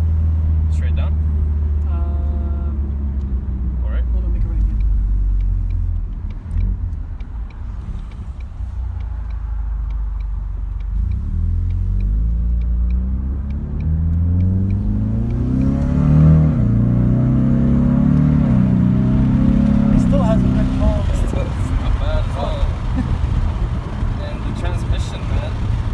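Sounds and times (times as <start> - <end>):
car engine accelerating: 0.0 - 25.9
light ticking: 0.1 - 25.9.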